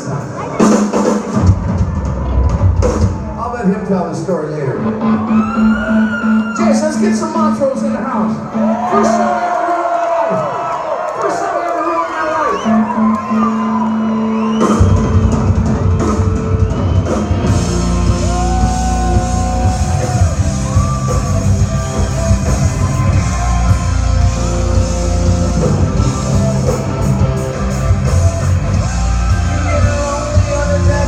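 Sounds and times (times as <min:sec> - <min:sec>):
rock band playing: 0:00.0 - 0:09.5, 0:12.5 - 0:31.0
electric guitar: 0:04.8 - 0:07.1, 0:12.6 - 0:31.0
bass guitar: 0:12.8 - 0:31.0.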